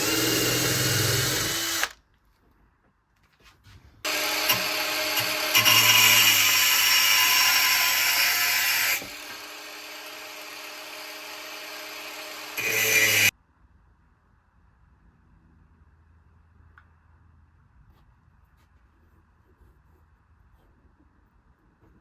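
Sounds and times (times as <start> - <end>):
electric power tool running: 0.0 - 1.9, 4.1 - 13.3.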